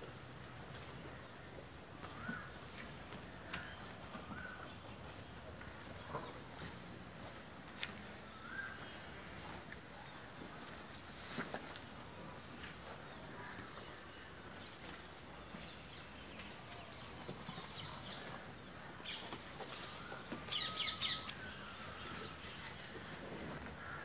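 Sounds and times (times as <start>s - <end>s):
birds chirping: 1.2s - 6.9s, 12.8s - 24.0s.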